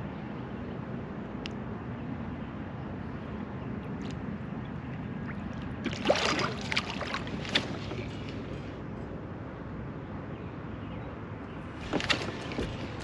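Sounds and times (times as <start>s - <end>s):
crackling: 11.6s - 13.0s
water against kayak hull: 11.6s - 13.0s.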